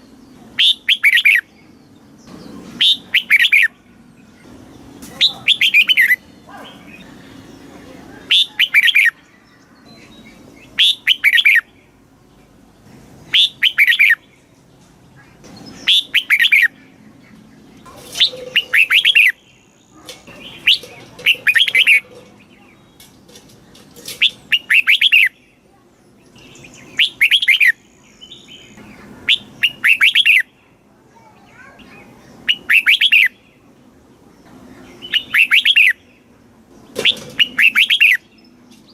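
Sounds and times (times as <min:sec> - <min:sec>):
bulbul singing song phrases: 0:00.0 - 0:23.1, 0:24.5 - 0:36.3.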